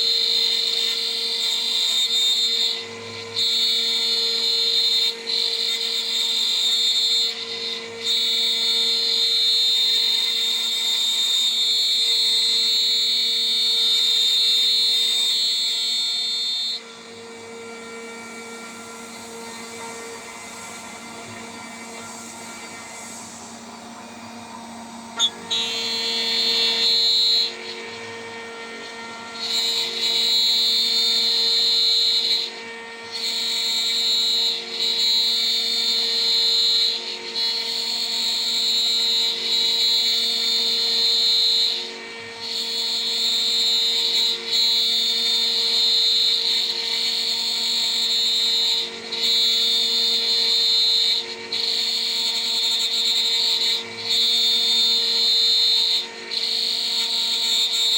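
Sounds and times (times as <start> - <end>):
high-pitched milling cutting tone: 0.0 - 57.9
router spindle hum: 16.8 - 31.7.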